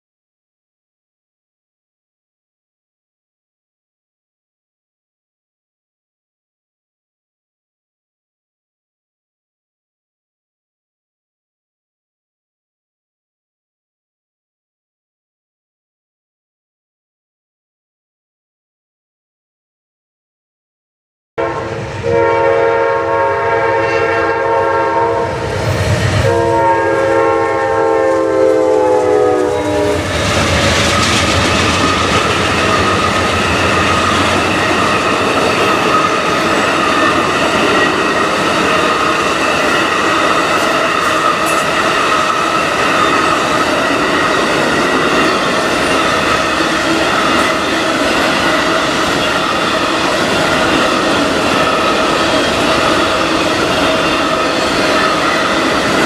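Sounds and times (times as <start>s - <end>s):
train air horn blasts: 21.4s - 30.3s
train rumbling and wheel clatter: 21.4s - 56.0s.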